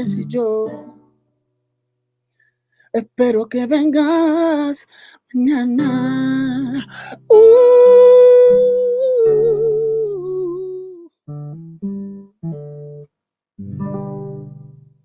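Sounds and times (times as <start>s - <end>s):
acoustic guitar chords: 0.0s - 1.4s, 5.4s - 15.0s.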